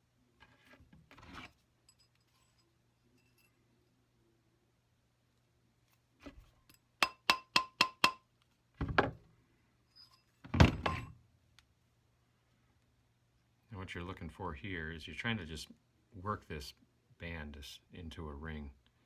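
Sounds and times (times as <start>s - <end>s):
mallet tapping metal ring: 7.0s - 8.2s.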